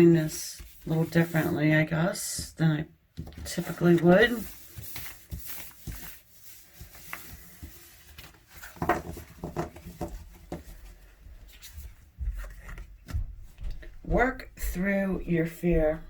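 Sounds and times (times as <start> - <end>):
cards being shuffled: 3.2 - 13.2.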